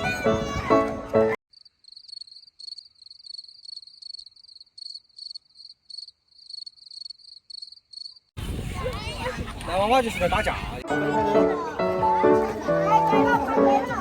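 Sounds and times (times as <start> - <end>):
cricket chirping: 1.5 - 8.3.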